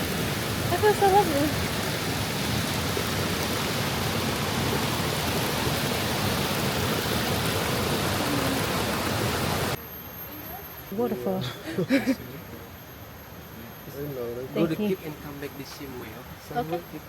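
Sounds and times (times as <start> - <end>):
waterfall rushing: 0.0 - 9.8.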